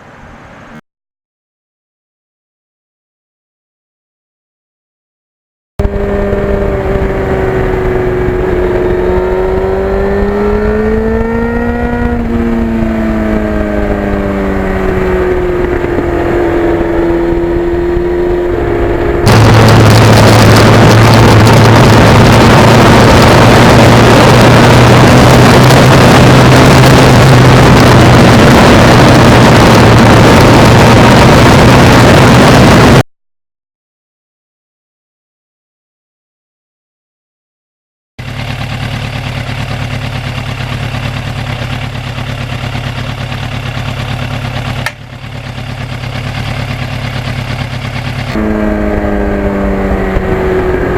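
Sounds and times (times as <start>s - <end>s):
motorcycle engine running: 5.8s - 33.0s, 38.2s - 50.9s
wind rush: 5.8s - 33.0s, 48.2s - 50.9s.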